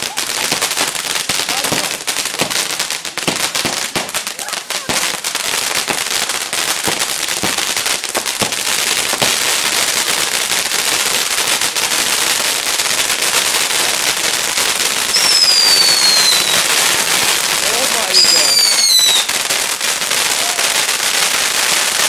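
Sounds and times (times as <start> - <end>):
fireworks crackling: 0.0 - 22.0
firework whistle falling in pitch: 15.1 - 16.6.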